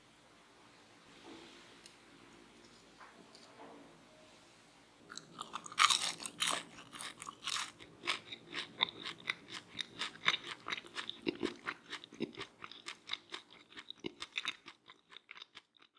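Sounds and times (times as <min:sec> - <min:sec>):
crunchy snacks being chewed: 0:05.1 - 0:15.9.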